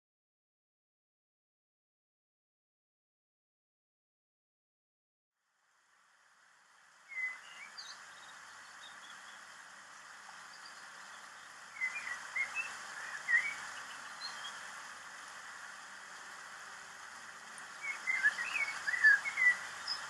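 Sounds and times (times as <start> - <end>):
steady outdoor hiss: 5.4 - 20.0
small birds chirping: 7.0 - 20.0.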